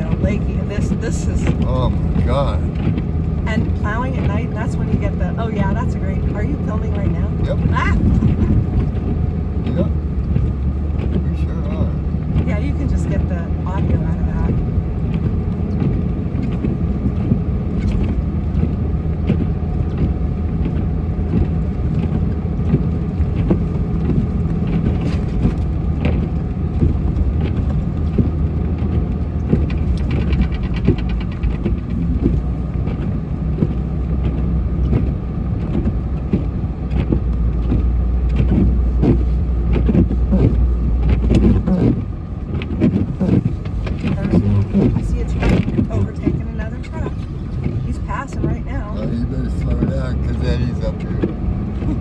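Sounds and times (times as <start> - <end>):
plow scraping snow: 0.0 - 52.0
truck engine rumble: 0.0 - 52.0
rattles: 23.0 - 33.1.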